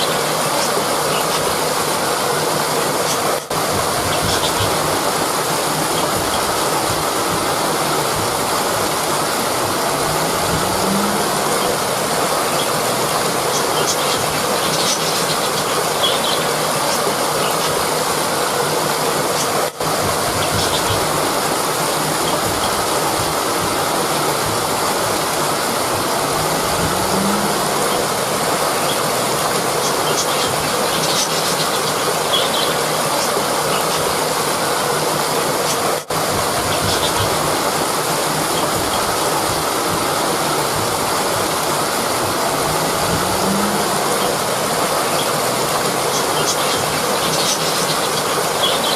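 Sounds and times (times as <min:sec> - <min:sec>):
river water rushing over rocks: 0:00.0 - 0:48.9.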